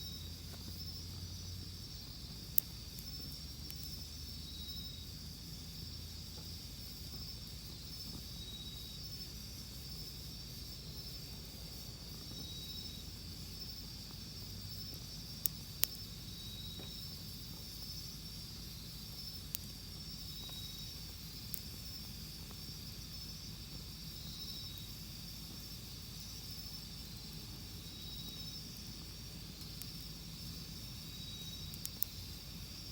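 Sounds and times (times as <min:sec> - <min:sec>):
insects trilling: 0:00.0 - 0:32.9
campfire popping: 0:00.4 - 0:04.1, 0:10.6 - 0:32.9.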